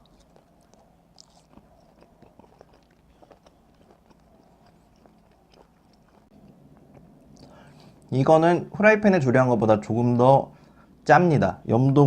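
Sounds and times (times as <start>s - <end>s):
mouth chewing with wet clicks: 0.0s - 8.1s.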